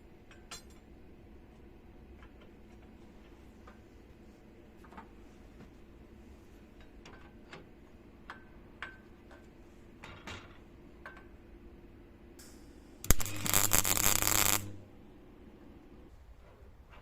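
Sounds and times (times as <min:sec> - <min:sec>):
loud electric motor running: 0:13.1 - 0:14.8
sharp crack: 0:13.1 - 0:14.8.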